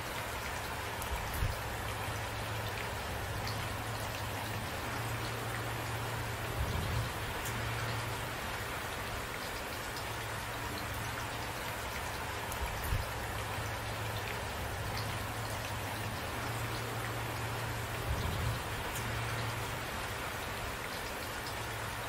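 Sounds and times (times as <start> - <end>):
raindrops ticking: 0.0 - 22.0
steady rain: 0.0 - 22.0.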